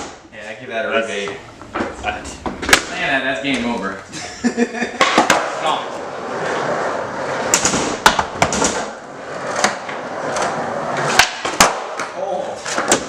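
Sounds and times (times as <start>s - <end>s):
skateboard wheels rolling: 1.0s - 4.0s, 5.0s - 13.0s
skateboard clacks popping and landing: 5.0s - 5.6s, 7.4s - 13.0s.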